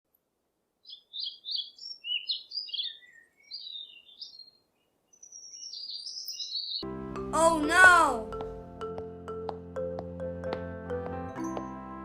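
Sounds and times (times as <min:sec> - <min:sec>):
bird warbling and chirping: 0:00.8 - 0:06.8.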